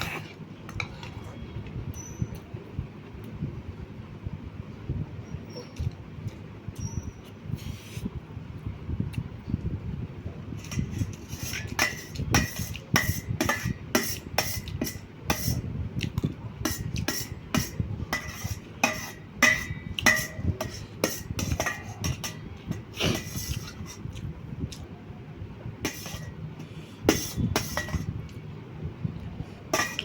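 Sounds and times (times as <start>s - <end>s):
metal spoon clinking on plate: 16.7s - 23.8s, 27.1s - 28.1s, 29.7s - 30.0s.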